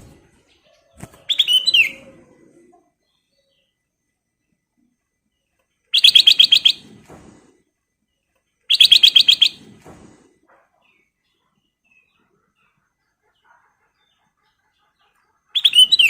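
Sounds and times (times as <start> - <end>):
bird rapid trills: 5.9 - 7.1, 8.7 - 9.8, 15.5 - 16.0.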